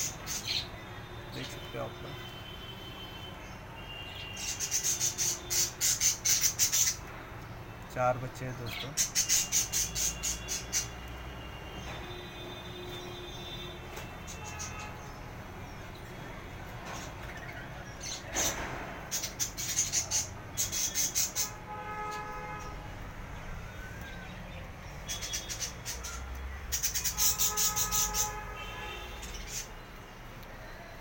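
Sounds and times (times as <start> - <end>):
budgies chirping: 0.0 - 0.8, 4.1 - 7.1, 8.0 - 11.0, 16.9 - 21.6, 24.0 - 28.4, 29.1 - 29.8.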